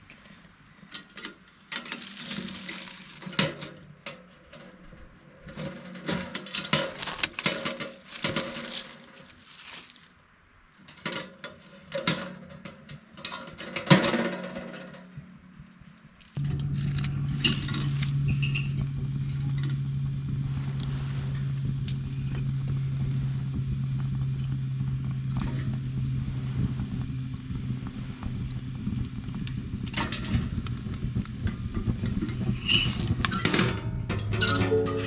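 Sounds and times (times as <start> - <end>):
camp gear rustling: 0.5 - 12.3.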